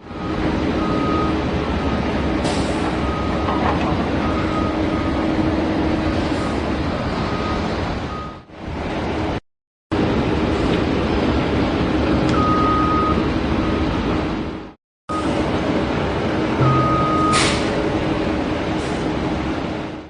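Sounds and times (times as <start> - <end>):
short high beeps: 16.6 - 17.7.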